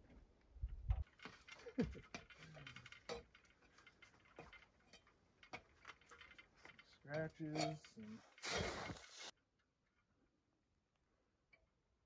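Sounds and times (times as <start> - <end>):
sharp clicks and knocks: 0.0 - 9.1.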